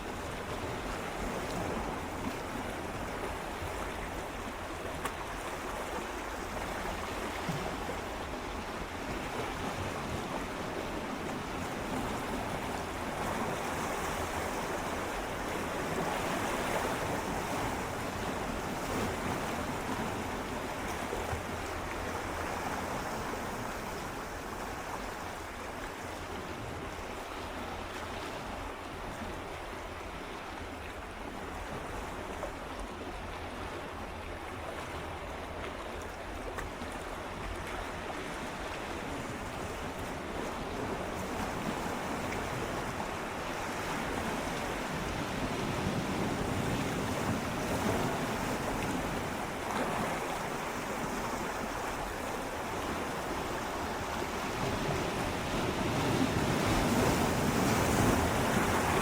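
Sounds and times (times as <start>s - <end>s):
sea waves lapping against rocks: 27.8s - 59.0s.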